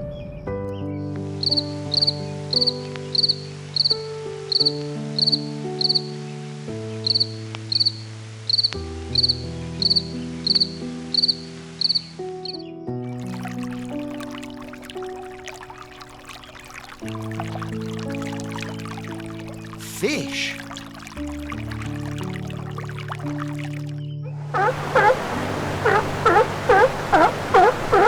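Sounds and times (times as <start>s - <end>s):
soft music with held chords: 0.0s - 28.0s
insect chirping: 7.0s - 12.6s, 24.6s - 28.0s.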